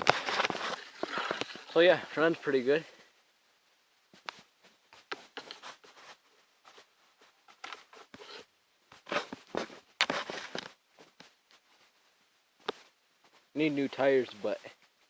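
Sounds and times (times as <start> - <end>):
scuffing and rustling: 4.1 - 15.0.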